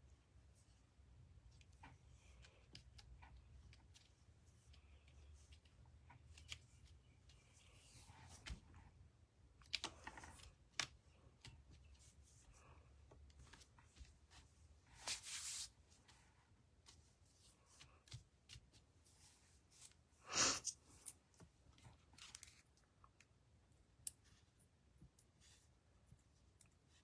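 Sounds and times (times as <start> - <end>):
paper rustling: 13.4 - 20.0, 21.9 - 22.7.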